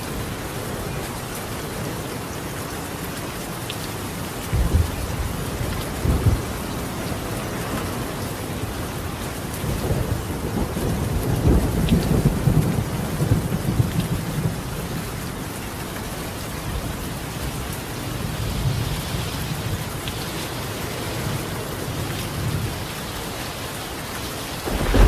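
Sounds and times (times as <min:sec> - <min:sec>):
rain on a tiled roof: 0:00.0 - 0:25.0
thunder rumbling: 0:04.5 - 0:08.0, 0:24.6 - 0:25.0.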